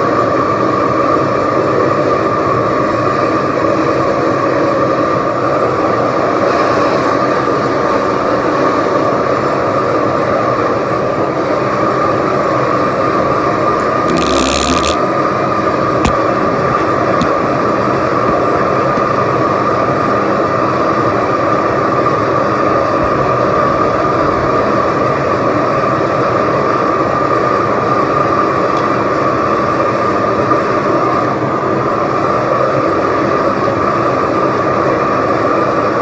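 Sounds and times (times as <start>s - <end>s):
constant tone: 13.7s - 15.0s.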